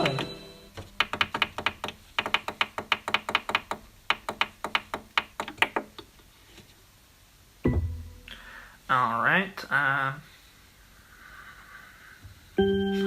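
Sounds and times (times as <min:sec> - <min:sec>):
quick uneven tapping clicks: 0:00.8 - 0:05.9.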